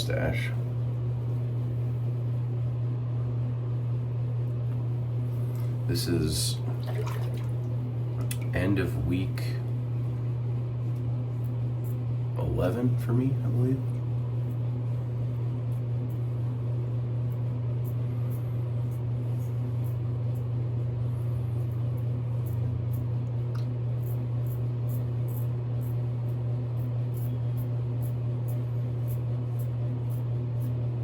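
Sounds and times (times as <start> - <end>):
low hum: 0.0 - 31.0
razor scratching over stubble: 17.2 - 23.2, 23.8 - 31.0.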